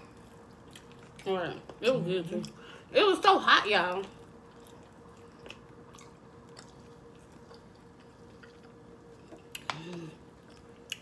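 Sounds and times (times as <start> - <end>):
faint steady hum: 0.0 - 11.0
chewing: 0.1 - 1.3, 4.0 - 11.0
person humming mm: 9.6 - 10.2.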